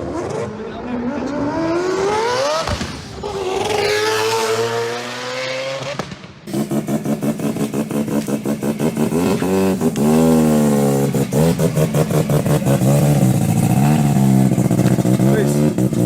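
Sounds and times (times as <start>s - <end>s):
rotary engine revving: 0.0s - 16.0s
engine popping: 6.5s - 16.0s.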